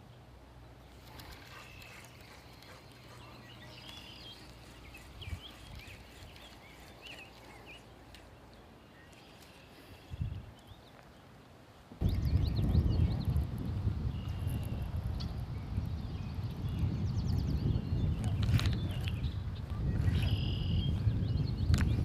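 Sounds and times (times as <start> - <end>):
birds chirping and whistling: 0.9 - 11.0, 12.0 - 13.4, 14.1 - 22.0.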